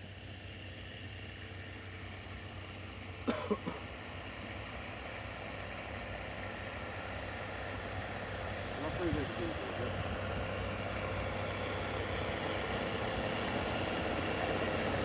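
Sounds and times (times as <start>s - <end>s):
person coughing: 3.3s - 3.8s.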